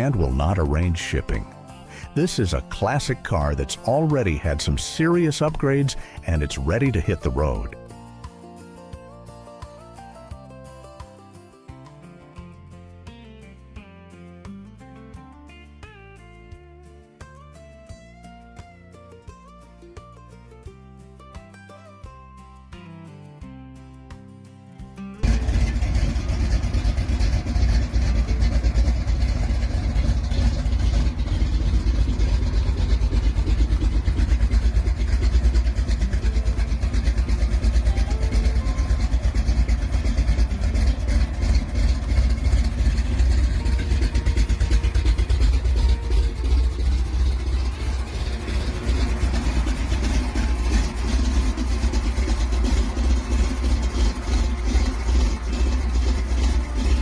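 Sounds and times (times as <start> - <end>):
car engine low rumble: 25.2 - 57.0.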